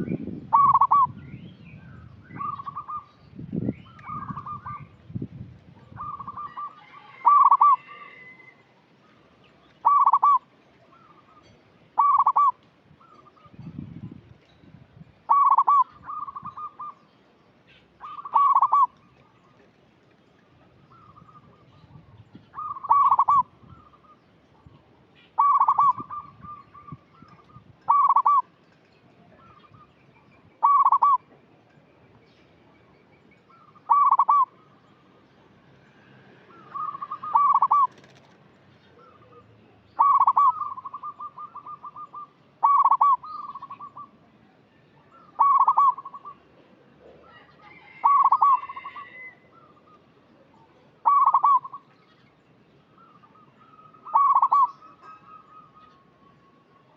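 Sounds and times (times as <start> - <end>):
dove cooing: 0.5 - 1.2, 5.9 - 8.4, 9.8 - 11.1, 12.0 - 12.6, 15.3 - 17.0, 18.0 - 19.0, 22.5 - 24.1, 25.4 - 28.5, 30.6 - 31.2, 33.5 - 34.6, 36.5 - 38.4, 40.0 - 44.1, 45.1 - 46.4, 47.1 - 49.9, 51.0 - 51.9, 53.3 - 56.1.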